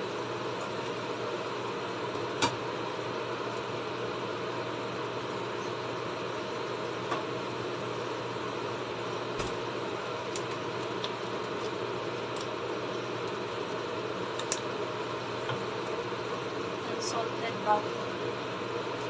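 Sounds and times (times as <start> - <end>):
small pops and crackles: 10.3 - 14.7.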